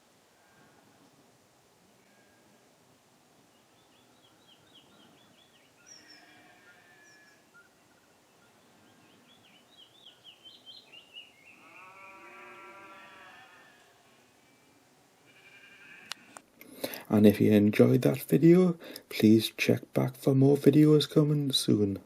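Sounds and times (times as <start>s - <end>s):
bird chirping: 3.5s - 15.9s
sheep bleating: 5.9s - 7.4s, 11.6s - 14.4s, 15.2s - 16.4s.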